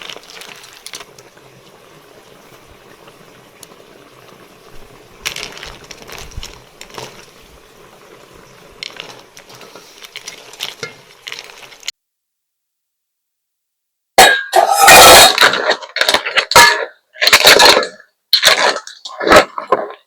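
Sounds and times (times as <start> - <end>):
liquid boiling in a pot: 0.0 - 12.0, 14.2 - 20.0.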